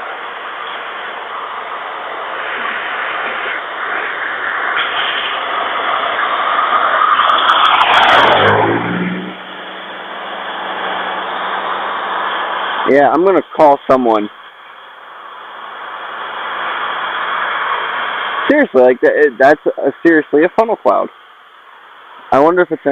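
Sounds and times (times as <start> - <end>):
vehicle passing by: 5.4 - 12.9.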